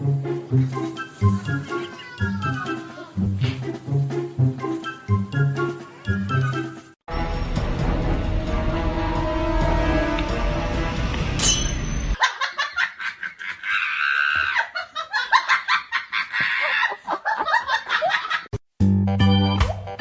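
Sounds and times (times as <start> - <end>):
organ-like music: 0.0 - 11.4
music: 0.0 - 12.1, 18.8 - 20.0
person laughing: 2.8 - 3.8, 12.2 - 18.5.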